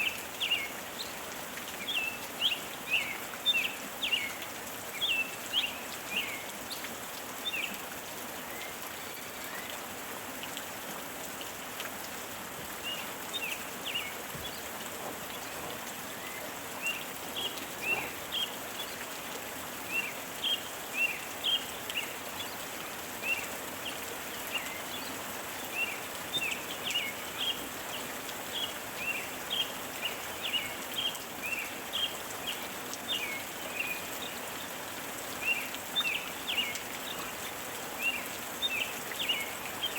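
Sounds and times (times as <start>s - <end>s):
steady rain hiss: 0.0s - 39.9s
birds chirping: 12.8s - 19.1s.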